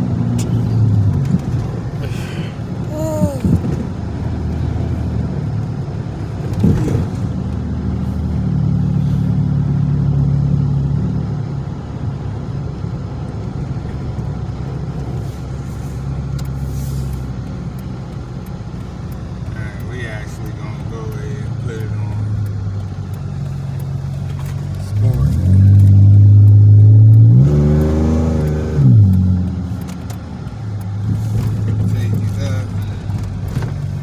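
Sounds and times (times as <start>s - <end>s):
car engine from inside cabin: 0.0s - 34.0s.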